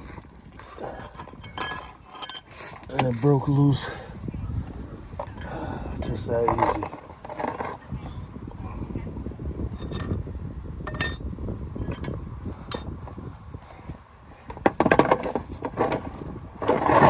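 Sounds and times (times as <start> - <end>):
steel wrenches clinking: 0.6 - 3.1, 5.2 - 6.8, 9.7 - 10.2, 10.9 - 13.1, 14.8 - 17.0.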